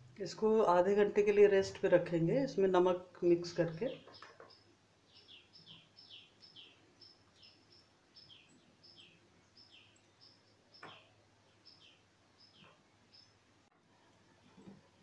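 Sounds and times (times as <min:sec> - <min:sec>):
faint bird chirping: 0:03.8 - 0:15.0.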